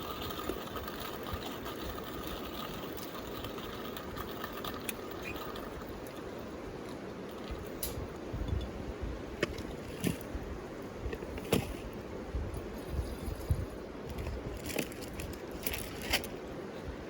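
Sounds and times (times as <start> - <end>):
river flowing: 0.0 - 8.3.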